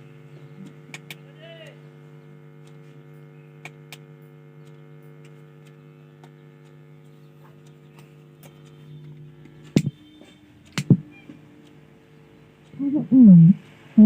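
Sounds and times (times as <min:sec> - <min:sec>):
amplifier mains hum: 0:00.0 - 0:14.0.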